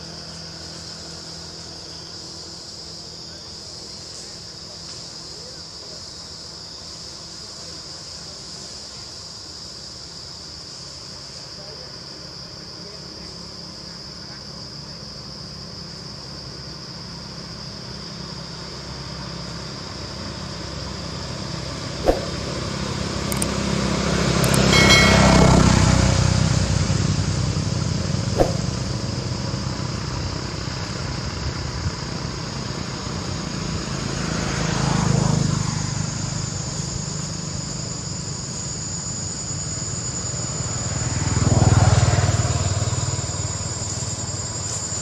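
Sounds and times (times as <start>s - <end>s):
high-pitched insect drone: 0.0s - 45.0s
vehicle engine passing: 22.0s - 31.1s
sharp clicks: 23.3s - 23.6s, 24.4s - 24.7s.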